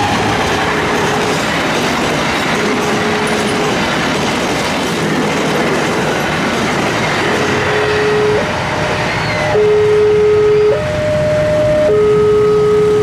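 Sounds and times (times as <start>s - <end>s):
train wheels rushing on rails: 0.0s - 9.6s.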